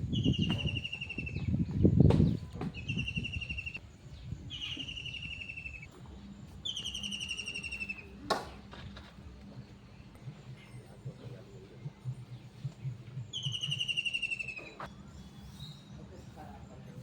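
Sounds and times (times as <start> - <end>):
bird trilled call: 6.6 - 8.1, 13.3 - 14.8.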